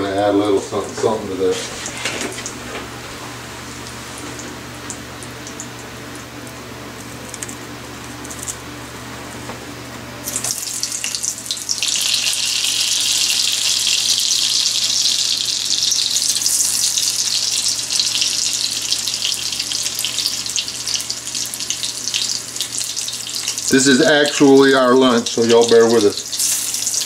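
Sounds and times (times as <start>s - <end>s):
onions sizzling in butter: 10.2s - 24.8s, 25.4s - 27.0s.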